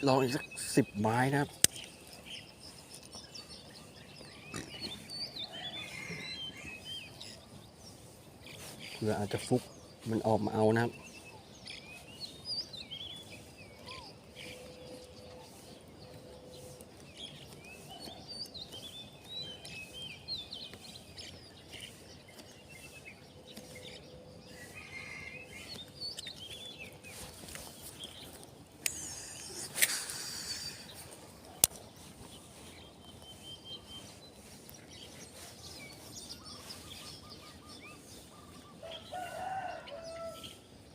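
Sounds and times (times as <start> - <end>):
outdoor background noise: 0.0 - 40.9
small birds chirping: 0.0 - 40.9.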